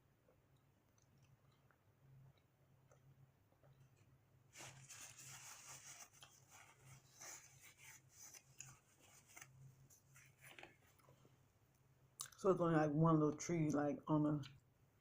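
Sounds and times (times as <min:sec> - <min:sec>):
person chewing food: 0:00.2 - 0:04.2.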